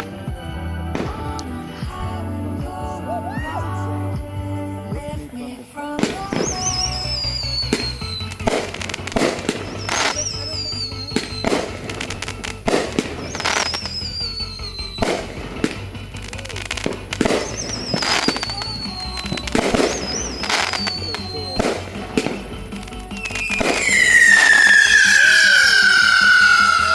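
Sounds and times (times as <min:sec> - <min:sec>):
music with low beat: 0:00.0 - 0:05.4, 0:06.0 - 0:26.9
fireworks bangs: 0:05.9 - 0:26.9
falling firework whistles: 0:06.1 - 0:26.9.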